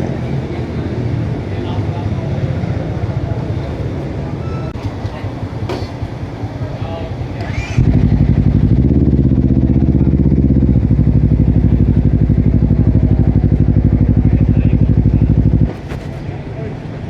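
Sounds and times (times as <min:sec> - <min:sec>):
motorcycle engine pulsing: 0:07.4 - 0:16.0.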